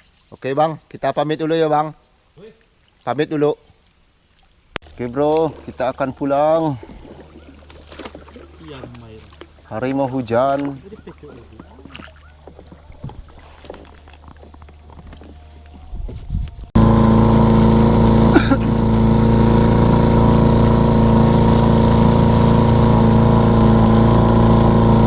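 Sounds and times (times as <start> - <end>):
small boat engine running: 4.8 - 15.8, 16.5 - 25.0.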